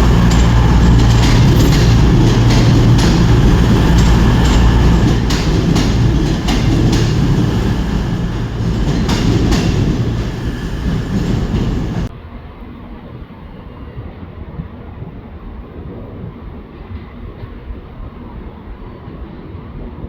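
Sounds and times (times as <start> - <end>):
train engine drone: 0.0 - 12.1
wheels clicking over rail joints: 0.0 - 12.1.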